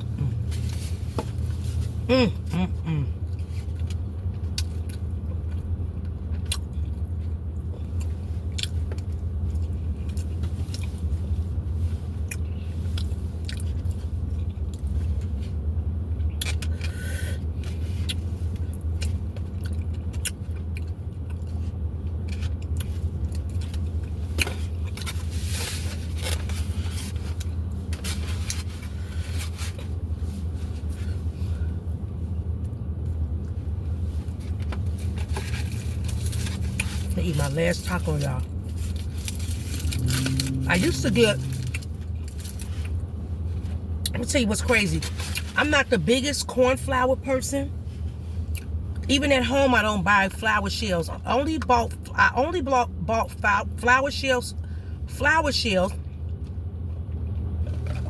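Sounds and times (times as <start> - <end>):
steady low hum: 0.0 - 58.0
chewing and crunching food: 3.1 - 44.1, 55.9 - 58.0.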